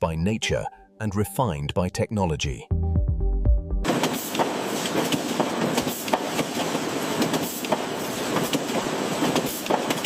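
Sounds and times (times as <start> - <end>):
factory machinery clattering: 3.9 - 10.0.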